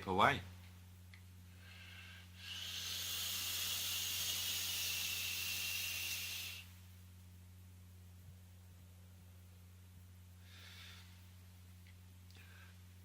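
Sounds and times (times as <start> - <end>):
electronic cigarette hissing: 1.7 - 6.8.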